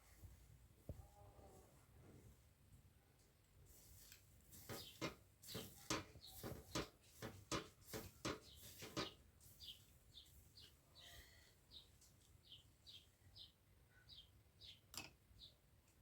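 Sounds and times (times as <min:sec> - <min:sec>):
small bird chirping: 0:04.7 - 0:06.8, 0:08.4 - 0:15.6.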